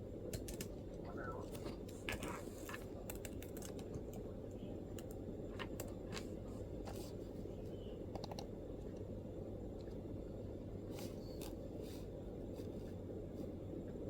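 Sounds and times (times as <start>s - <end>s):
low room rumble: 0.0s - 14.0s
laptop keyboard typing: 0.2s - 1.1s, 2.1s - 6.3s.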